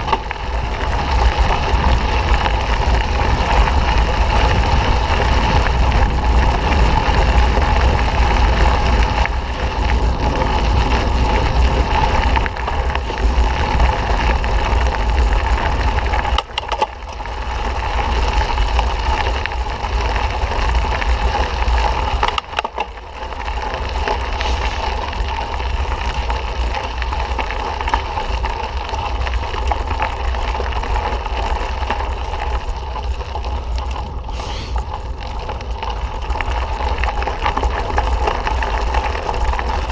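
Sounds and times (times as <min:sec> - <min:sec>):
wind rumbling on microphone: 0:00.0 - 0:39.9
tyres crunching over dirt: 0:23.8 - 0:26.1.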